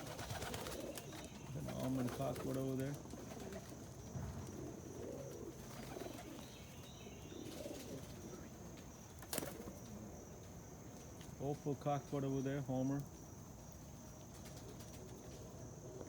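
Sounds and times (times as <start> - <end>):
pigeons cooing: 0.0 - 10.4, 14.4 - 16.0.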